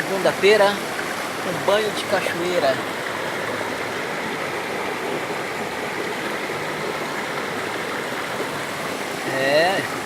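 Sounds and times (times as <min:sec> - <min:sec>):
waterfall pouring and splashing: 0:00.0 - 0:10.0.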